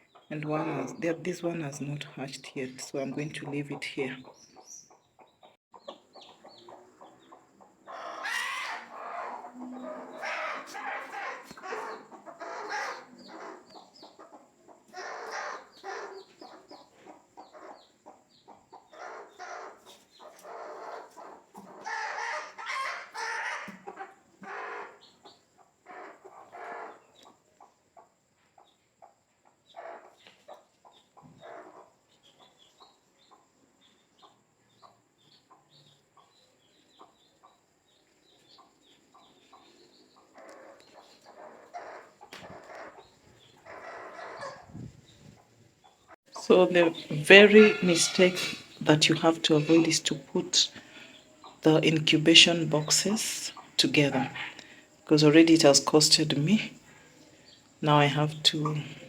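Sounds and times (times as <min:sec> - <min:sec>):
chicks peeping: 0:00.0 - 0:54.7
hens squawking and clucking: 0:03.0 - 0:27.8, 0:29.7 - 0:33.4, 0:38.6 - 0:57.3.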